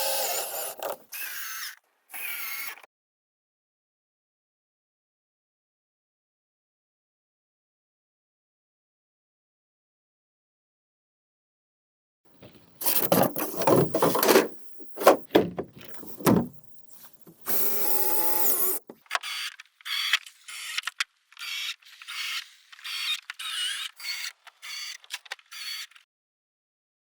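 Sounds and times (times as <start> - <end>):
knocks and clatters: 12.4 - 17.5.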